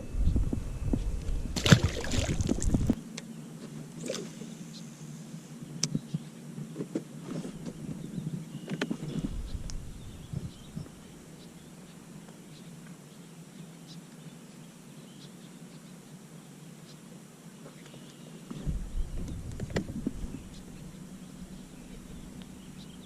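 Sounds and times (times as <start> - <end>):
low rumble with knocks: 0.0 - 3.0, 9.1 - 11.0, 18.5 - 22.9
steady low hum: 0.0 - 17.3, 18.2 - 23.0.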